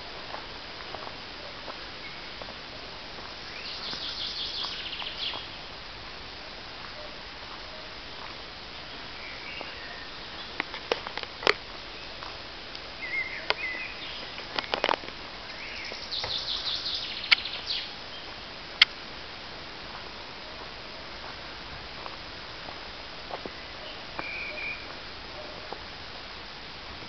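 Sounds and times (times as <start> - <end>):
background hiss: 0.0 - 27.0
small birds chirping: 3.2 - 5.7, 6.9 - 10.9, 11.8 - 18.6.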